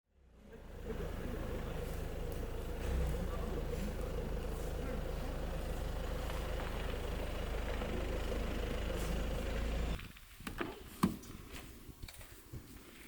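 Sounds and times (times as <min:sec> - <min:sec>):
vehicle engine humming: 0:00.1 - 0:10.1.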